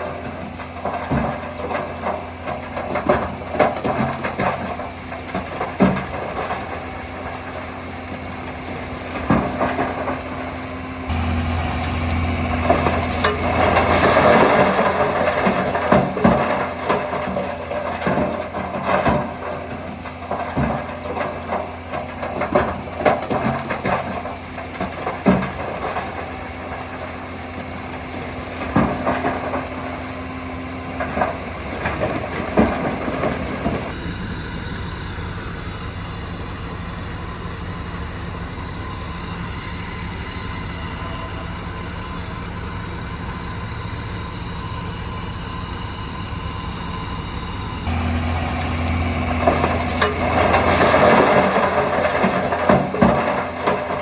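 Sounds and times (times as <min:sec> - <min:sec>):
heavy diesel machinery running: 0:00.0 - 0:54.0
metal clanks and knocks: 0:00.0 - 0:54.0
engine hiss: 0:24.2 - 0:53.3.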